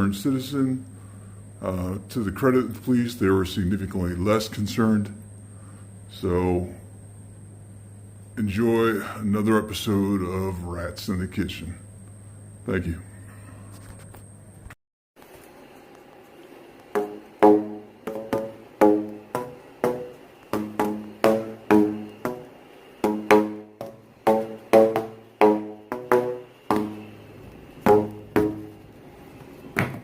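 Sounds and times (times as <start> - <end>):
pitched percussion strikes: 17.0 - 28.8.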